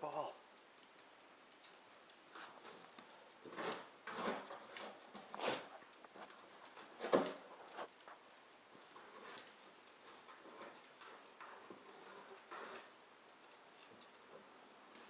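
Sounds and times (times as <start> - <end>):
dog scuffing and ripping cardboard: 3.4 - 7.9.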